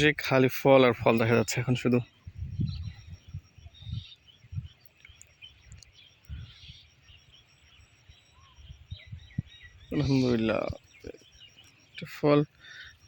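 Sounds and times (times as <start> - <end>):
faint bird chirps: 0.0 - 13.0
low thumps on microphone: 2.3 - 4.8, 8.9 - 9.5.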